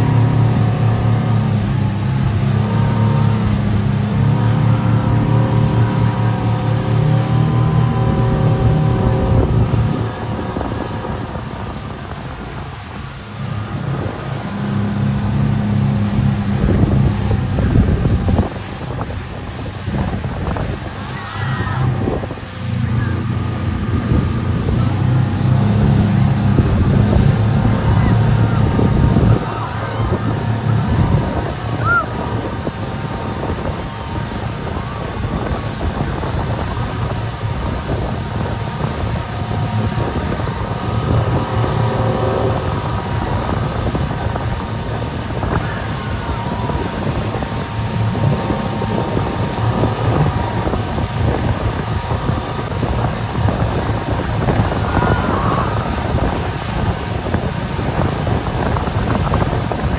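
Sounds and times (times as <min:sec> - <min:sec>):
motorboat engine running: 0:00.0 - 0:59.9
sea water rushing: 0:00.0 - 0:59.9
wind buffeting microphone: 0:00.0 - 0:59.9.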